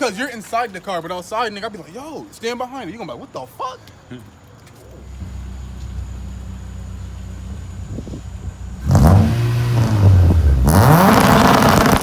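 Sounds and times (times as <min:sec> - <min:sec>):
exhaust crackle: 0:05.0 - 0:12.0
car engine revving: 0:05.1 - 0:12.0.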